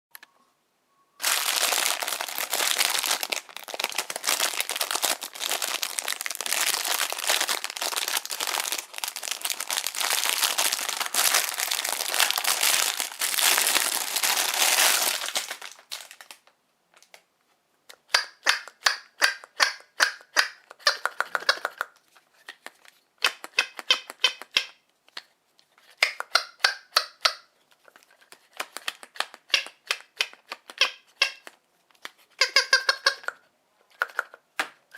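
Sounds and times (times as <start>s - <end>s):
plastic packaging crinkling: 1.2s - 16.5s
squeaky toy hammer squeaking: 23.5s - 24.8s, 26.3s - 27.5s, 30.7s - 31.5s, 32.4s - 33.4s.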